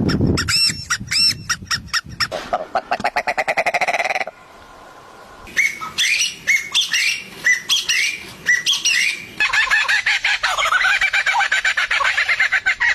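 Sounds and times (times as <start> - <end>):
bird calling sharply: 5.5 - 10.7
bird chattering calls: 5.5 - 12.3.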